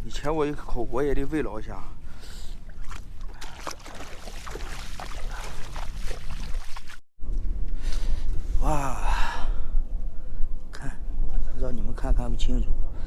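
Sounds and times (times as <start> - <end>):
wind rumbling on microphone: 0.0 - 13.0
shallow water splashes: 2.1 - 7.1.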